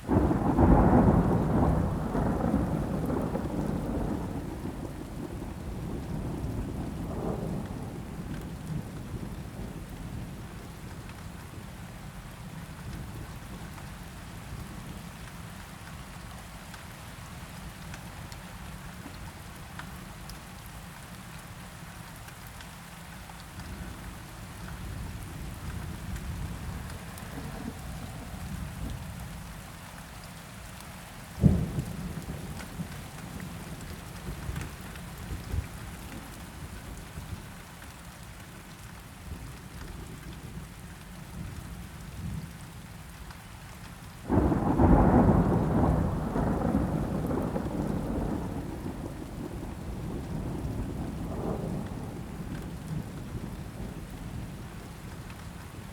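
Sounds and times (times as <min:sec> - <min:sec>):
steady rain: 0:00.0 - 0:55.9
rolling thunder rumble: 0:00.1 - 0:10.7, 0:25.0 - 0:29.4, 0:31.4 - 0:36.8, 0:44.3 - 0:55.1.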